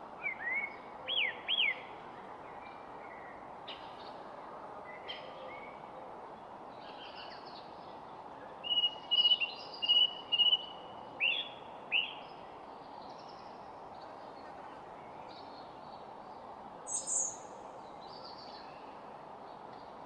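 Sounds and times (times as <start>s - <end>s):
background hiss: 6.4s - 20.0s
wild birds calling: 16.9s - 17.6s.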